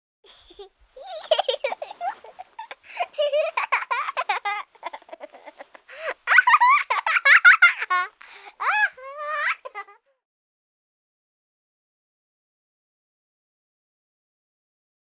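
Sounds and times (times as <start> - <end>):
young children giggling: 0.3 - 10.1.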